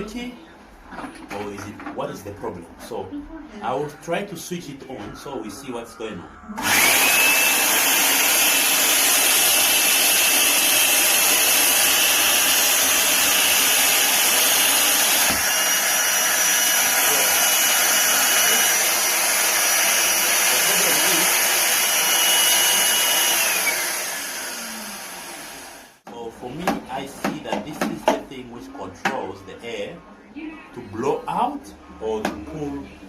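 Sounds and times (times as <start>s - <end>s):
vacuum cleaner motor whine: 6.6s - 26.0s.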